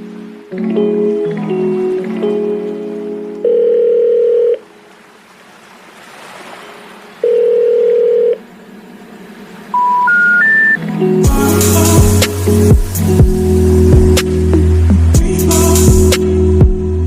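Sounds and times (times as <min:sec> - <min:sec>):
washing machine beeps: 0:09.7 - 0:10.8.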